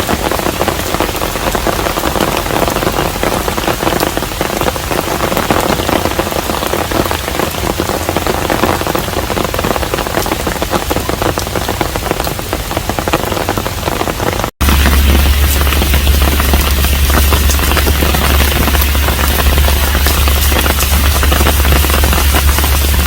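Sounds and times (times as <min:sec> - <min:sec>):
rain patter on roof: 0:00.0 - 0:23.0
strong low hum: 0:00.1 - 0:05.8, 0:14.6 - 0:23.0.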